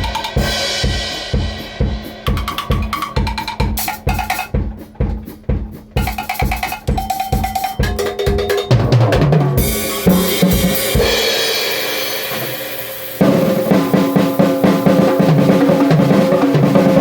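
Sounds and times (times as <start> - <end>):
kick drum hits: 0.0 - 8.8
fast drumming: 0.0 - 17.0
cymbal wash: 9.6 - 15.8.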